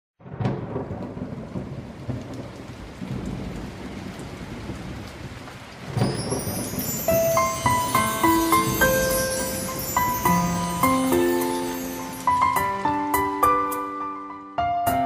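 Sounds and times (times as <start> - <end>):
thunder rumbling: 0.2 - 13.4
steady rain: 0.2 - 14.0
chiming music: 6.0 - 14.2.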